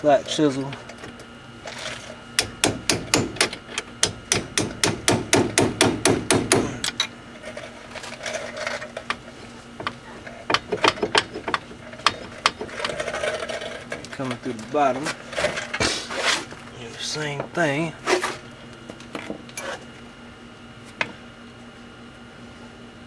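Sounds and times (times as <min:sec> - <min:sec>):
metal hammering on chisel: 0:02.4 - 0:06.9.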